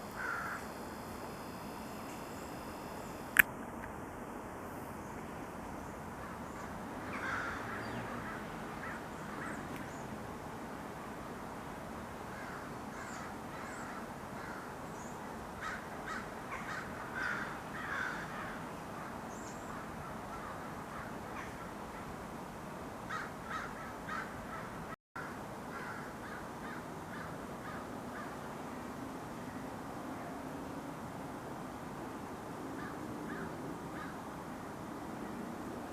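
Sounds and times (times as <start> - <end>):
outdoor hiss: 0.0 - 6.6
crows cawing: 0.1 - 2.9, 7.0 - 9.6, 12.4 - 14.7, 15.6 - 19.1, 20.3 - 21.8, 23.1 - 28.4, 32.8 - 34.2.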